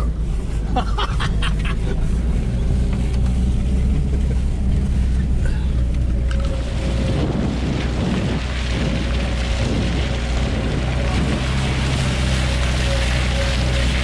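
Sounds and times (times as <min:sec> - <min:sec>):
car engine running: 0:00.0 - 0:14.0
tyres on muddy dirt track: 0:00.0 - 0:14.0
wind on microphone: 0:06.4 - 0:14.0.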